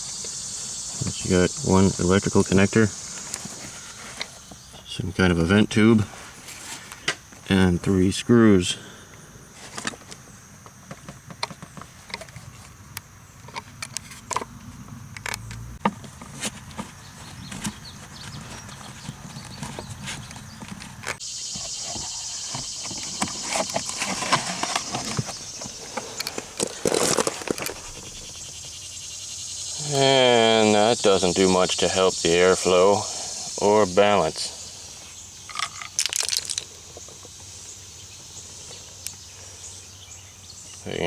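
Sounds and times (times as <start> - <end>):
steady hiss: 0.0 - 12.6, 21.1 - 41.0
hand tools clicking: 35.5 - 36.7.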